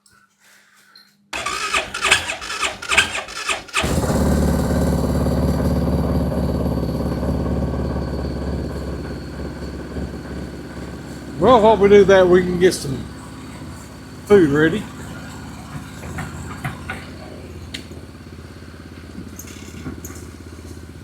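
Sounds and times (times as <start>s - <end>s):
starter cranking engine: 1.4s - 13.0s
engine idling: 1.4s - 21.0s.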